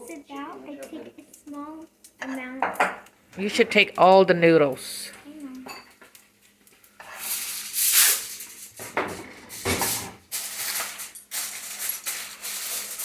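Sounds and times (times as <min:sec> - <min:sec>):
food sizzling in hot oil: 0:05.6 - 0:08.8, 0:09.5 - 0:13.0.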